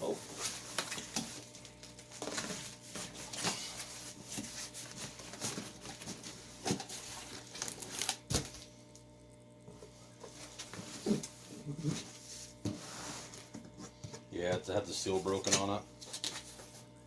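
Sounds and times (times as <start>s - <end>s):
packaging crinkling and tearing: 0.4s - 8.7s.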